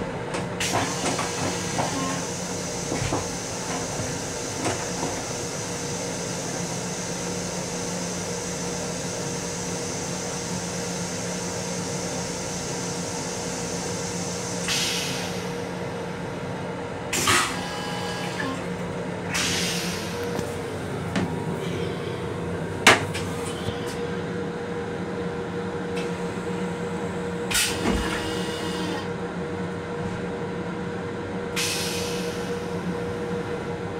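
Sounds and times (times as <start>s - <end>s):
train and ventilation hum: 0.0s - 33.9s.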